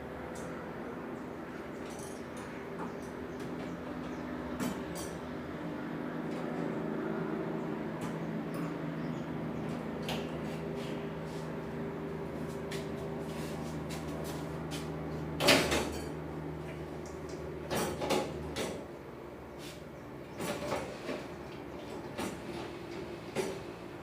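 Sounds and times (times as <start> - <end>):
steady low hum: 0.0 - 20.4.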